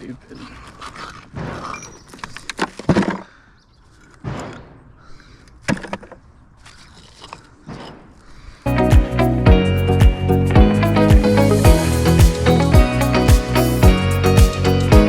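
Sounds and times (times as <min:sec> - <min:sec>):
bricks knocking and clattering: 0:01.0 - 0:03.3, 0:05.6 - 0:06.2.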